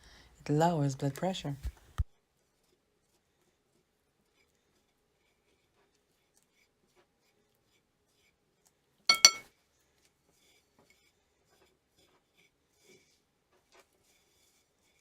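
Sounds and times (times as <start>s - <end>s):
clinks on glass: 9.1s - 9.4s.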